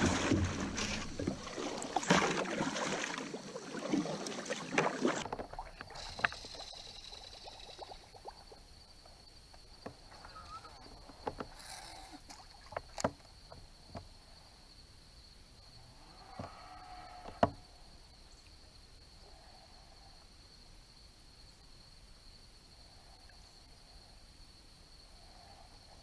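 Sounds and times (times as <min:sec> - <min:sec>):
light water splashing: 0:00.0 - 0:08.7
faint water lapping: 0:00.0 - 0:13.5
knocks against kayak hull: 0:17.3 - 0:17.6.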